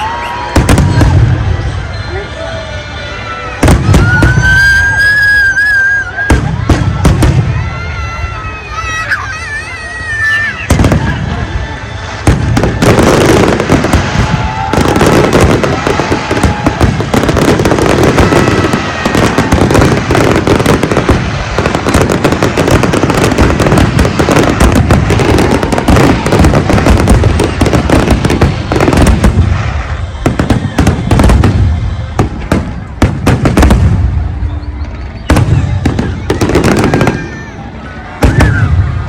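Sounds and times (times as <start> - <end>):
fireworks bursts and crackling bangs: 0.0 - 39.0.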